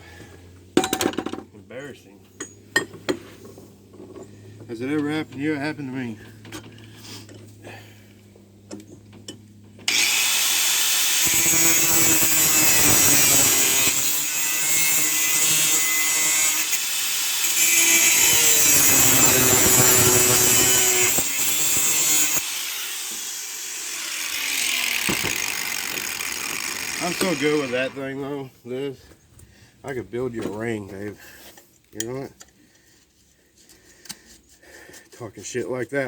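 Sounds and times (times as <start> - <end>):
power tool cutting metal pipe: 9.9 - 28.1.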